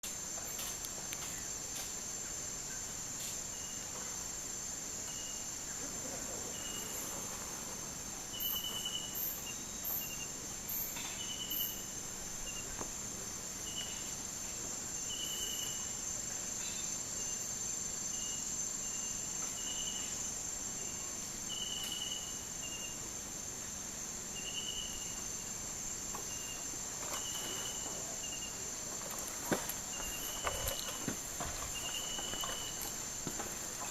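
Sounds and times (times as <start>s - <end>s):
insect chirps: 0.0s - 33.9s
very high insect pulses: 0.0s - 33.9s
high-pitched insect drone: 8.3s - 12.8s, 14.9s - 23.4s.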